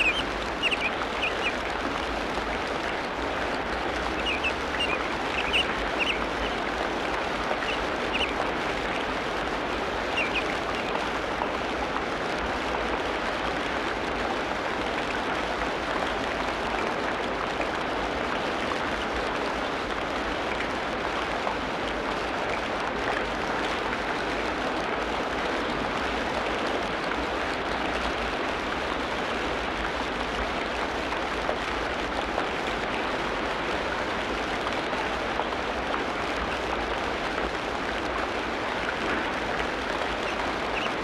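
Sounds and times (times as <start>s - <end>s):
high bird chirps: 0.0s - 1.6s, 4.2s - 6.6s, 7.6s - 8.3s, 10.2s - 10.5s
hiss of falling rain: 0.0s - 41.0s.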